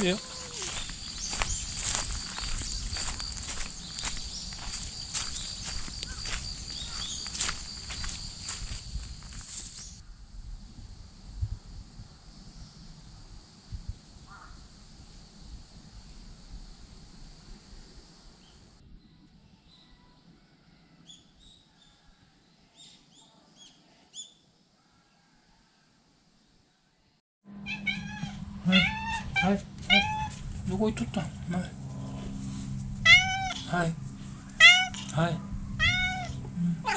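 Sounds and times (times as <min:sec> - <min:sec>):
short bird calls: 0:00.0 - 0:02.9
high-pitched insect drone: 0:00.0 - 0:10.0, 0:27.5 - 0:36.9
low rumble: 0:27.5 - 0:36.9.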